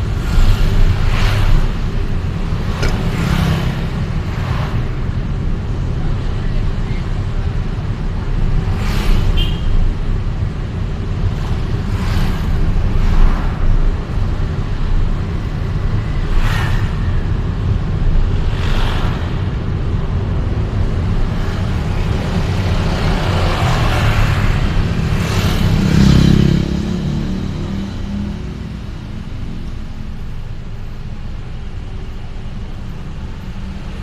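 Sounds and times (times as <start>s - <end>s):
road and engine rumble: 0.0s - 34.0s
vehicles rushing past: 0.0s - 34.0s.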